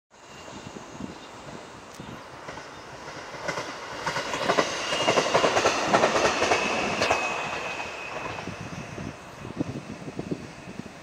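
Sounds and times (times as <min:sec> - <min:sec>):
train passing: 0:00.1 - 0:11.0
wheels clacking over rail joints: 0:01.9 - 0:08.5.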